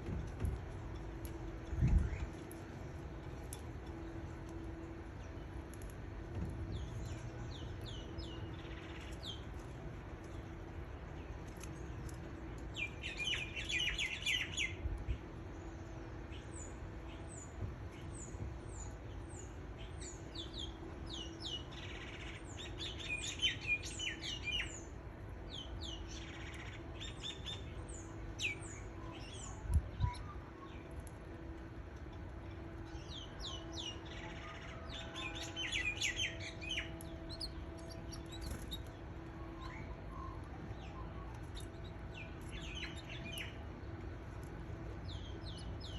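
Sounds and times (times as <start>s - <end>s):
canaries chirping: 11.4s - 15.1s, 32.8s - 45.9s.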